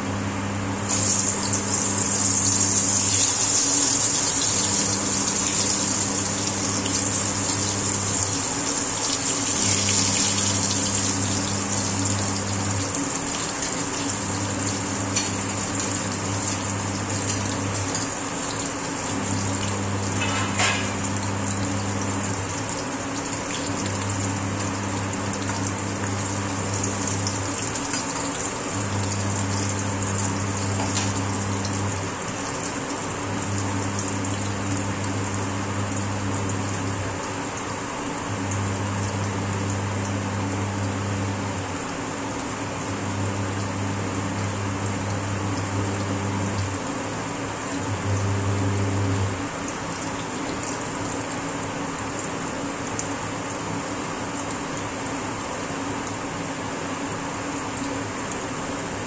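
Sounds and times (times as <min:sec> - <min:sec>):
vegetable slices sizzling in oil: 0:00.8 - 0:36.8.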